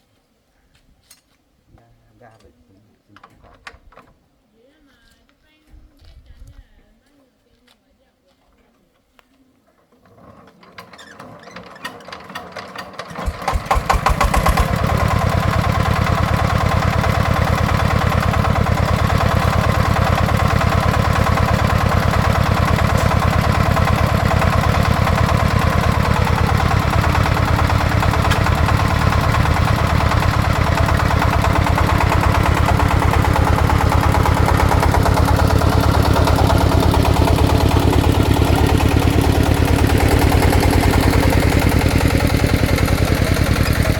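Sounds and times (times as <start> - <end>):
diesel engine starting and running: 10.0 - 43.9.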